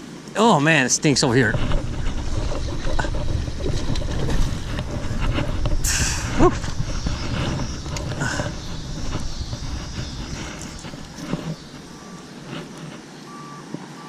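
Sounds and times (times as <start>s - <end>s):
low rumble: 1.3s - 12.8s
vehicle reversing alarm beeping: 7.3s - 12.4s, 13.2s - 14.0s.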